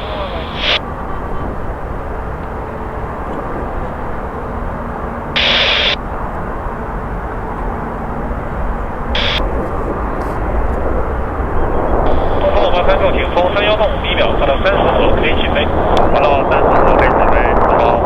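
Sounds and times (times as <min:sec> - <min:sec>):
radio static bursts: 0:00.0 - 0:01.6, 0:05.3 - 0:06.0, 0:09.1 - 0:10.9, 0:11.6 - 0:18.0
jet engines rumbling: 0:00.0 - 0:18.0.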